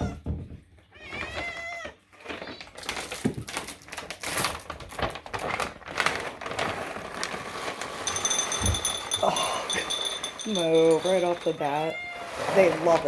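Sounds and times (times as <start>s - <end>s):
cat meowing: 0.9s - 2.0s.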